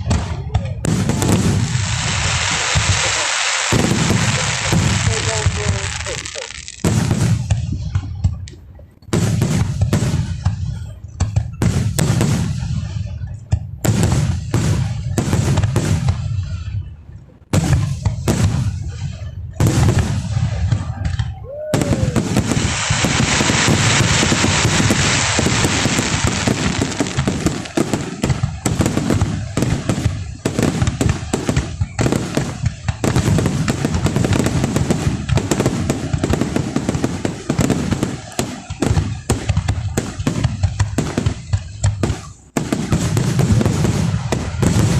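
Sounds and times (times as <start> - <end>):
firework booms: 0.0 - 8.5, 9.1 - 16.8, 17.5 - 44.9
firework crackling: 0.0 - 8.5, 17.6 - 44.9.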